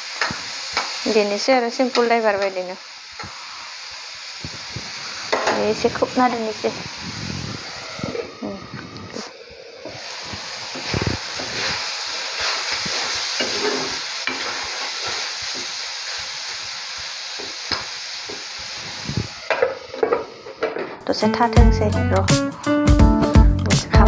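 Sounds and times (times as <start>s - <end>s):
food sizzling in oil: 0.0s - 22.2s
metal spoon scraping pan: 12.4s - 15.2s.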